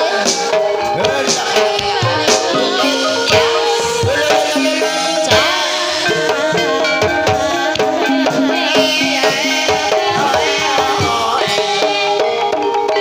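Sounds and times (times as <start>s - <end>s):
hand drum strokes: 0.0s - 12.3s
gliding melody line: 0.0s - 12.9s.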